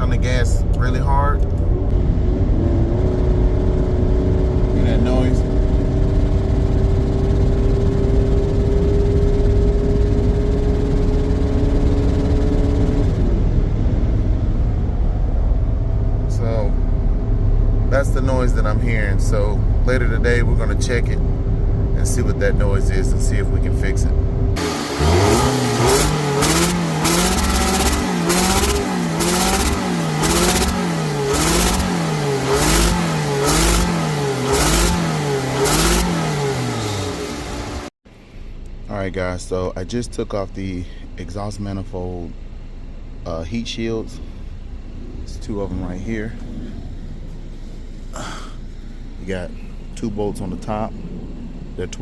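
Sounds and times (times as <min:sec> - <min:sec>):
car engine at high revs: 0:00.0 - 0:37.9
car engine revs surging: 0:22.0 - 0:37.9.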